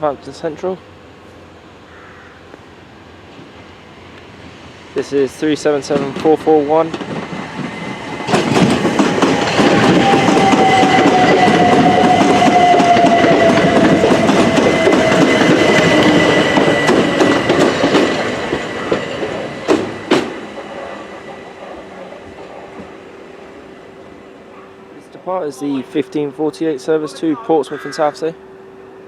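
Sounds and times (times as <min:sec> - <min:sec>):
train wheels clattering over rail joints: 0:05.8 - 0:23.0
traction motors whining: 0:05.9 - 0:25.1.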